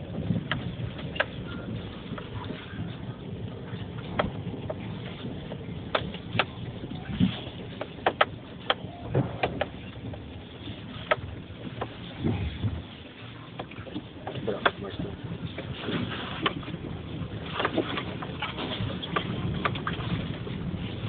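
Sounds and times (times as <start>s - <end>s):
car rumbling off-road: 0.0s - 21.0s
sharp knocks and rattles: 5.8s - 10.3s.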